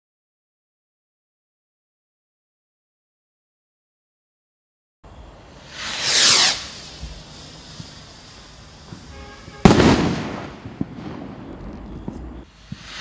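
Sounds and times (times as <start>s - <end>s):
firework rocket bang: 5.5s - 13.0s
small firework pops: 5.7s - 13.0s.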